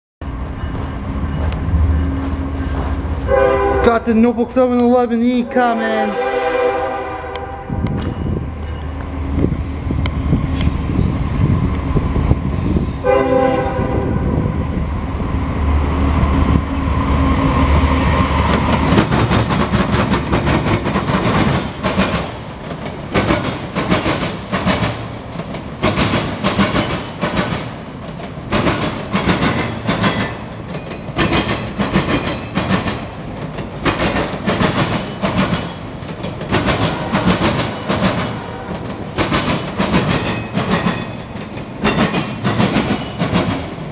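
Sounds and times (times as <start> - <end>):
diesel locomotives rumbling: 0.2 - 43.9
train air horn blast: 2.5 - 4.2, 5.5 - 7.9, 13.0 - 14.4, 38.4 - 38.8
train wheels clickety-clack: 18.1 - 43.9.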